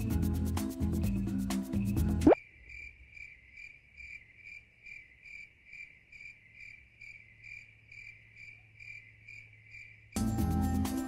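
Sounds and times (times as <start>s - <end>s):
crickets chirping: 2.3s - 10.2s.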